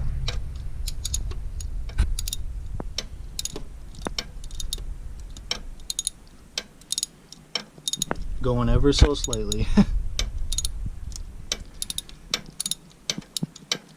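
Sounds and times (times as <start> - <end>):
low rumble: 0.0 - 6.8, 8.0 - 12.4
hand tools clinking: 3.4 - 8.2, 9.1 - 9.8, 11.7 - 13.9.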